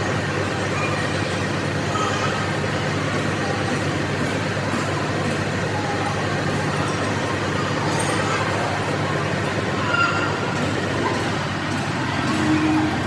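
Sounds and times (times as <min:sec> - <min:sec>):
low machinery hum: 0:00.0 - 0:13.0
mechanical noise: 0:07.8 - 0:13.0.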